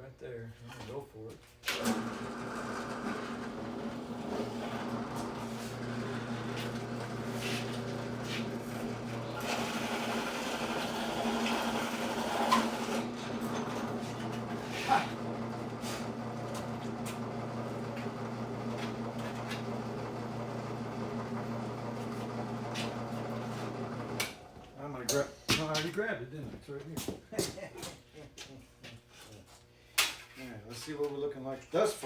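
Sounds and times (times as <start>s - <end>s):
electric drill motor running: 1.8s - 24.5s
drill bit squealing: 5.9s - 15.3s.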